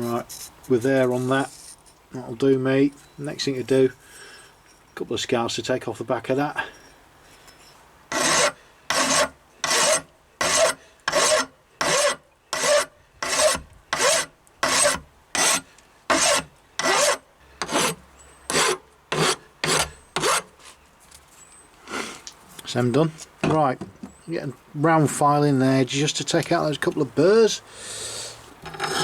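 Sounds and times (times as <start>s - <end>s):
file rasping on steel: 8.1s - 20.5s, 28.7s - 29.0s.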